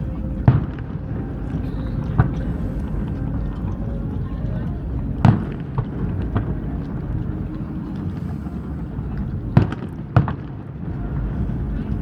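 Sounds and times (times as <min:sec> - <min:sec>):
steady low rumble: 0:00.0 - 0:12.0
firework pops and bangs: 0:09.6 - 0:10.7.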